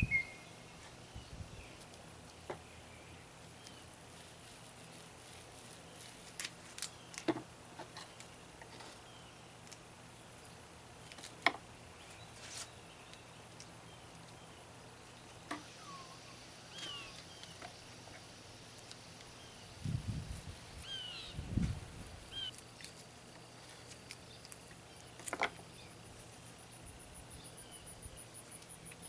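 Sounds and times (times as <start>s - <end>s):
bird chirps: 0.0s - 1.8s, 15.2s - 17.6s, 20.8s - 21.5s, 22.3s - 22.6s.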